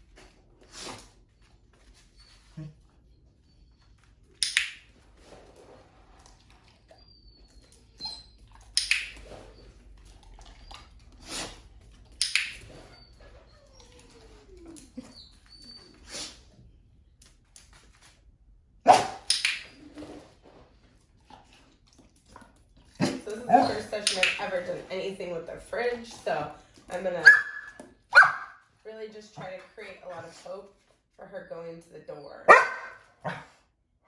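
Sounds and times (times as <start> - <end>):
dog barking: 18.9 - 19.3, 23.0 - 23.9, 27.2 - 28.6, 32.5 - 33.6.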